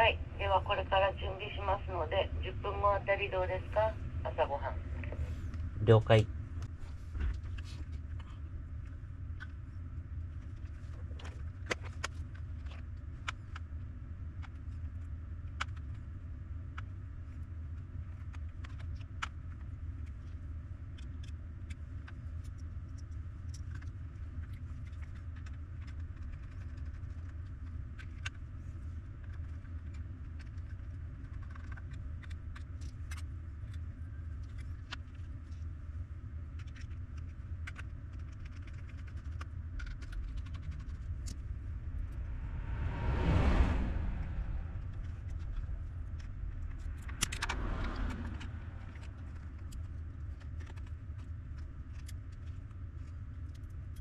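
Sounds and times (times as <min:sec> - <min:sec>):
low rumble: 0:00.0 - 0:17.8, 0:28.5 - 0:54.0.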